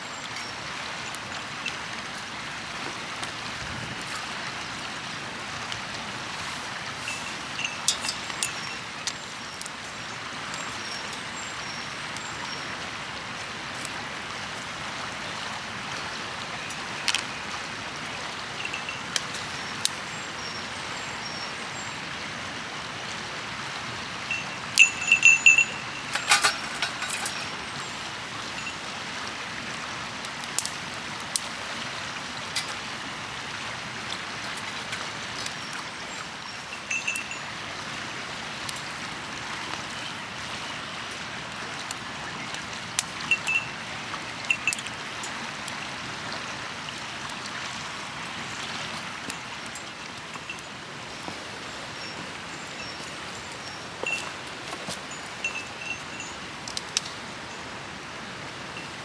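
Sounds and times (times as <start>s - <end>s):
river flowing: 0.0s - 59.0s
metallic clinks: 7.0s - 8.8s, 24.3s - 27.8s, 36.9s - 37.5s, 43.3s - 43.8s, 44.5s - 45.0s.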